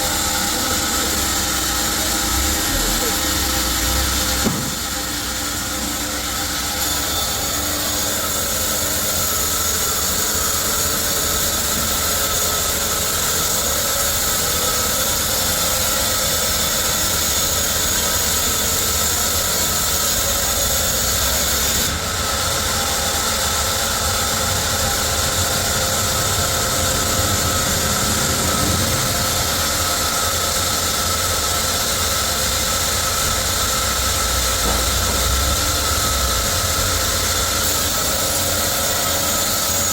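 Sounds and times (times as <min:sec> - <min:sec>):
sawmill machinery humming: 0:00.0 - 0:39.9.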